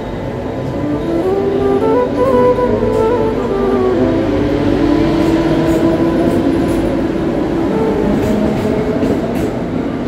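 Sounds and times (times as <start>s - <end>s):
electric train rail running noise: 0.0s - 10.0s.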